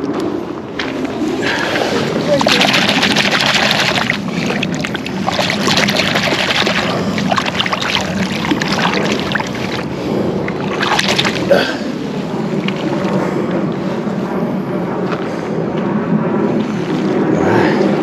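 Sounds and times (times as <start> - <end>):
water rushing and splashing: 0.8 - 13.2.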